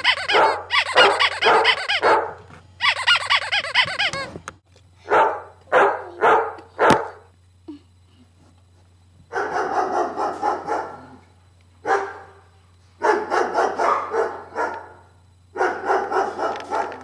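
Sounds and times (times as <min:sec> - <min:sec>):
small dog barking: 0:00.0 - 0:02.4, 0:05.1 - 0:07.2, 0:09.3 - 0:11.2, 0:11.8 - 0:12.4, 0:13.0 - 0:17.0.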